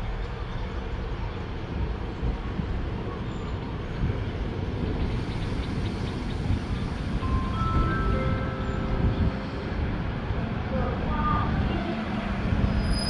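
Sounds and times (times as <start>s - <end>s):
diesel train rumble: 0.0s - 13.0s
steady high tones: 7.0s - 11.1s.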